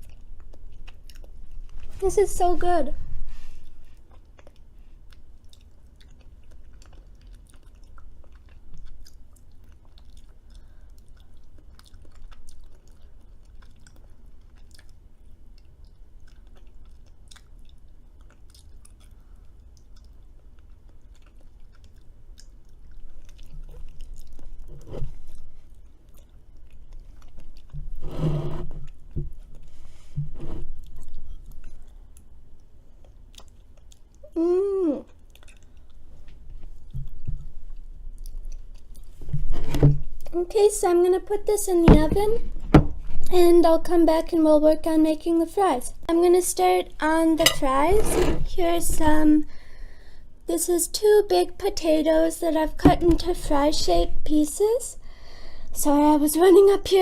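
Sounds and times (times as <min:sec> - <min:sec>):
chewing and mouth clicks: 0:00.0 - 0:01.9, 0:03.5 - 0:28.0, 0:30.8 - 0:34.4, 0:35.0 - 0:39.3.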